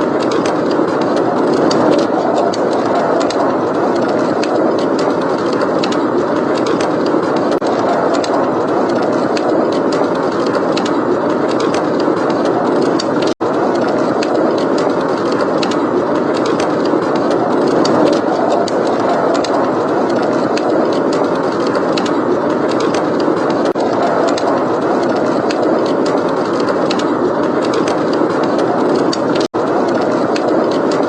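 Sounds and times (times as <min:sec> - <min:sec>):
blizzard wind rushing: 0:00.0 - 0:31.0
wood fire crackling: 0:00.0 - 0:31.0.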